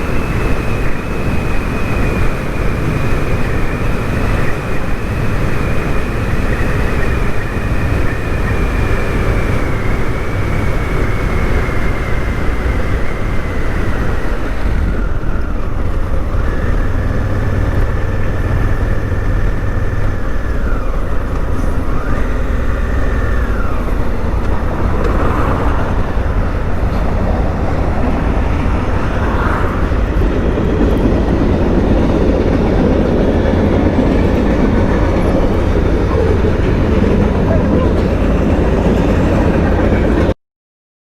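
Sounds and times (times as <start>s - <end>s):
faint high whine: 0.0s - 30.6s
motorcycle engine and road noise: 0.0s - 40.3s.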